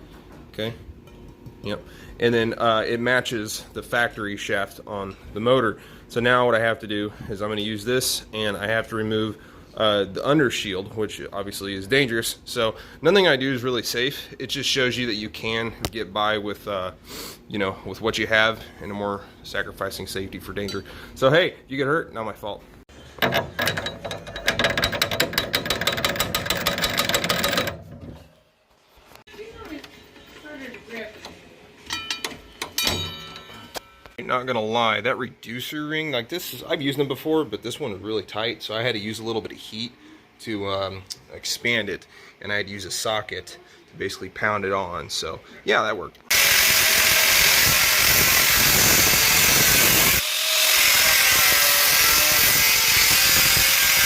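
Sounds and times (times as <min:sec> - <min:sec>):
ratchet wrench clicking: 0:23.6 - 0:27.8
power drill running: 0:46.3 - 0:54.0.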